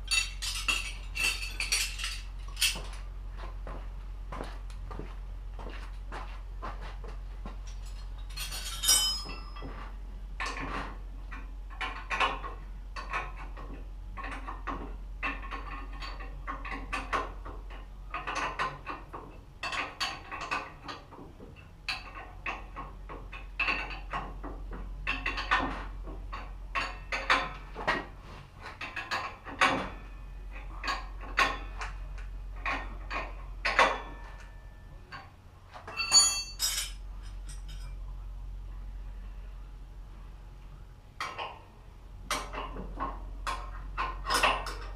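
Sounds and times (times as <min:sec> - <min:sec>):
metal tools clinking: 0:00.0 - 0:03.0, 0:07.7 - 0:09.7, 0:35.9 - 0:38.0
steady low hum: 0:00.0 - 0:44.9.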